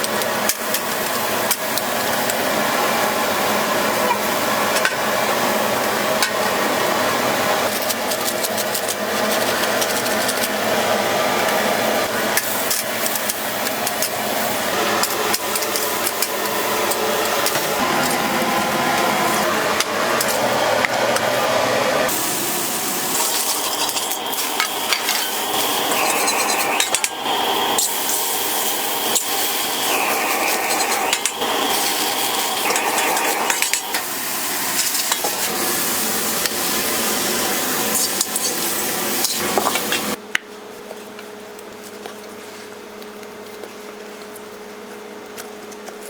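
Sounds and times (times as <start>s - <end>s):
metal utensils scraping and clinking: 7.6s - 10.6s, 14.9s - 18.4s, 22.9s - 35.8s
food sizzling in a pan: 22.1s - 40.2s.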